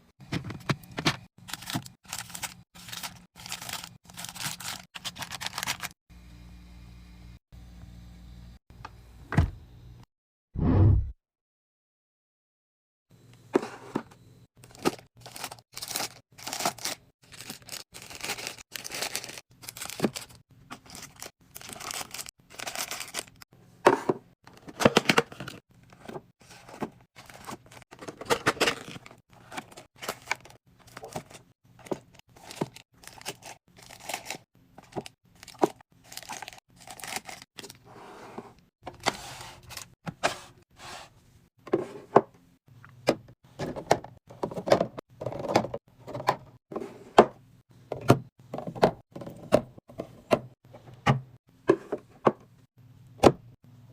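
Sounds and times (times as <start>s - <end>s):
plastic packaging crinkling: 1.4s - 6.0s, 14.6s - 23.4s, 27.2s - 37.7s.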